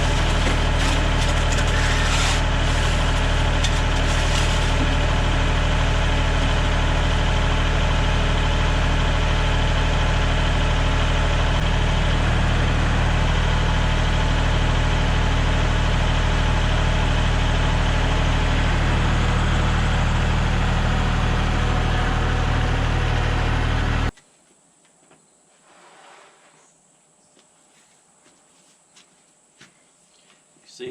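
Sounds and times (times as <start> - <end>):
engine idling: 0.0 - 24.1.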